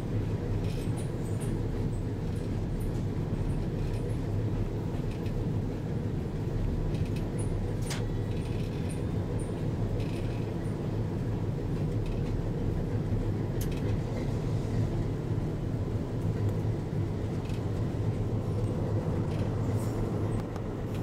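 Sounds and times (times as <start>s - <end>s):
rail vehicle droning along track: 0.0s - 21.0s.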